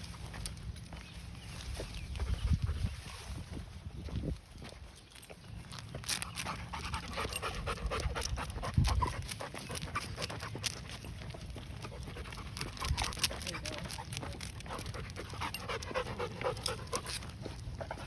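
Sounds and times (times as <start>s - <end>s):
dog panting: 6.3s - 18.0s.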